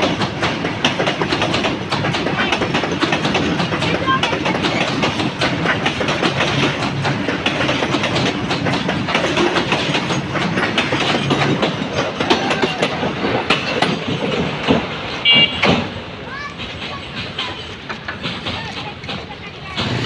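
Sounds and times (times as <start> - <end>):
freight train rattling past: 0.0 - 20.0
wheels clattering over rail joints: 0.0 - 20.0.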